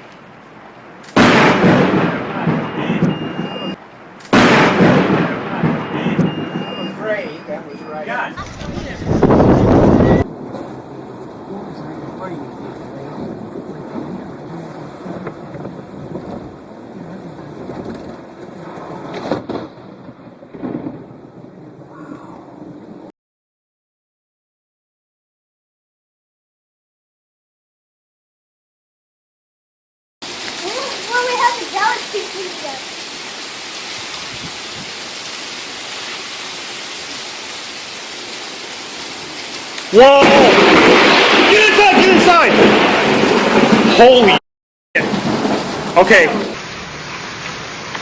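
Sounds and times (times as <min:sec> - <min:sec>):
steady rain: 0:00.0 - 0:23.1, 0:30.2 - 0:44.4, 0:45.0 - 0:48.0
wind: 0:00.0 - 0:23.1, 0:30.2 - 0:44.4, 0:45.0 - 0:48.0
thunder crack: 0:01.2 - 0:07.0, 0:08.4 - 0:23.1, 0:39.9 - 0:44.4, 0:45.0 - 0:46.6.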